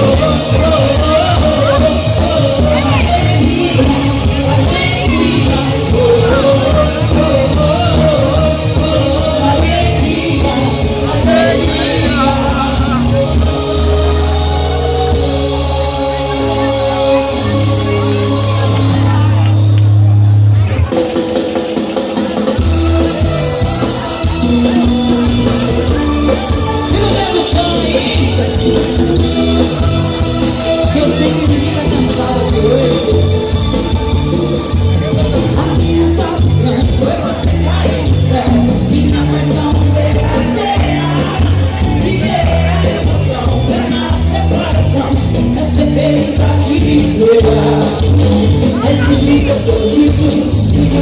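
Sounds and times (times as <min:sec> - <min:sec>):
singing: 0:00.0 - 0:19.0, 0:34.9 - 0:51.0
carnival music with steady beat: 0:00.0 - 0:51.0
crowd noise and shouts: 0:00.0 - 0:51.0.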